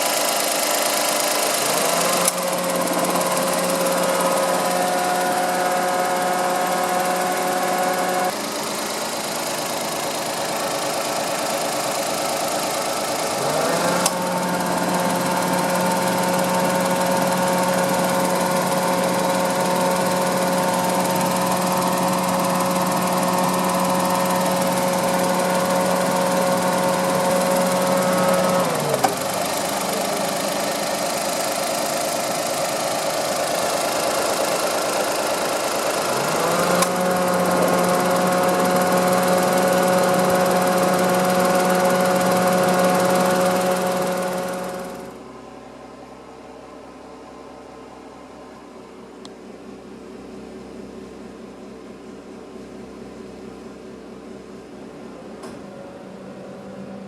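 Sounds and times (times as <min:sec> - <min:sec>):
car engine idling: 0:00.0 - 0:45.6.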